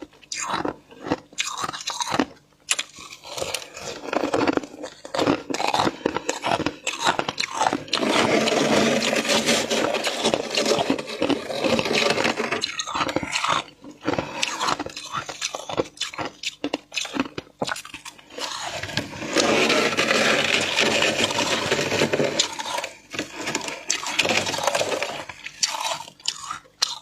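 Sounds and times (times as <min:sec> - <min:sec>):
frost being scraped and crunched: 0:02.9 - 0:15.6, 0:18.3 - 0:26.4.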